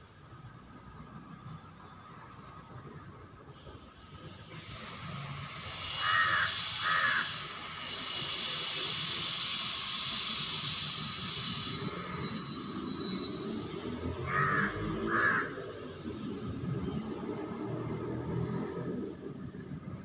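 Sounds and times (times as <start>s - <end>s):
steady high-pitched hiss: 3.7s - 14.2s
harsh bird calls: 5.9s - 7.6s.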